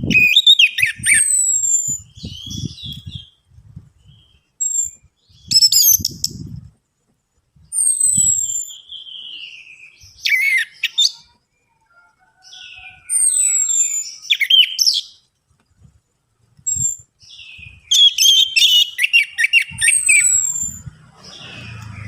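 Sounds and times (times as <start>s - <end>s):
thrush singing: 20.1s - 22.0s.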